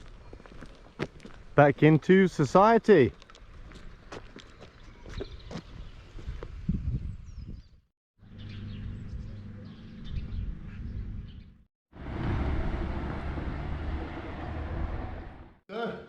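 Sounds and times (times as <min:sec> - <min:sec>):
birds chirping: 0:03.1 - 0:11.6
road traffic rumble: 0:08.2 - 0:15.6.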